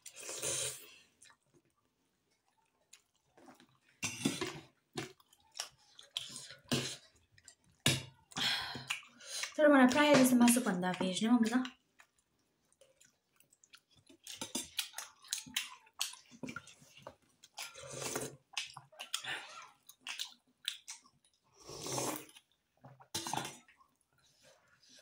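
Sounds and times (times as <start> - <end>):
slurping soup: 0.0 - 1.4, 2.4 - 8.3, 12.8 - 25.0
wet chewing and smacks: 1.1 - 21.6, 22.2 - 25.0.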